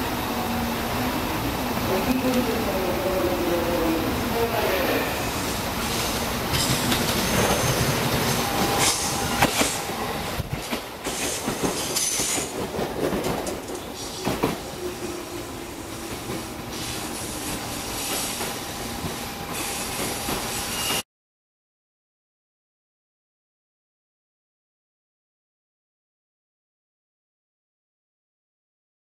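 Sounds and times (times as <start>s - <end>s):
train wheels clicking over rail joints: 5.9s - 14.8s
thin wheel squeal: 19.6s - 21.0s.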